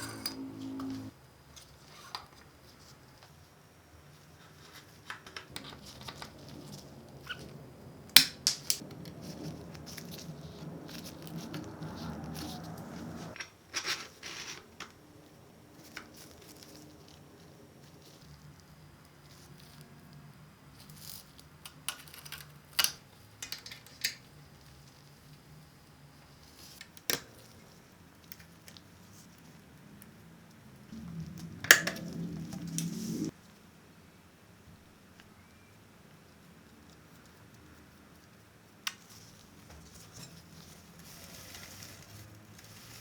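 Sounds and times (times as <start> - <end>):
steady noise: 30.9 - 33.3.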